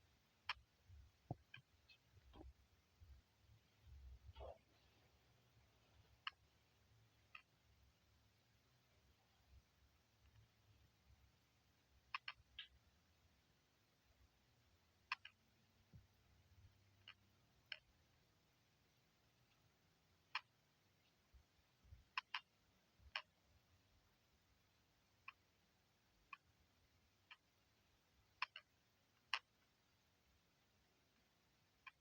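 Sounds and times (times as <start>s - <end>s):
faint sharp clicks: 12.1s - 12.8s, 28.2s - 29.8s, 31.1s - 32.0s.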